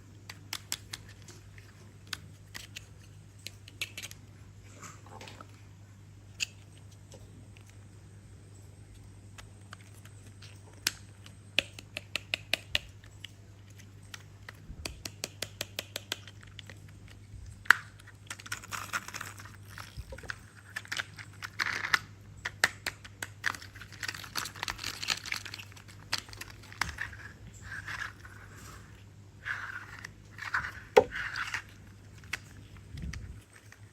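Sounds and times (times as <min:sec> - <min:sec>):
rustling and scraping: 0:23.7 - 0:33.9.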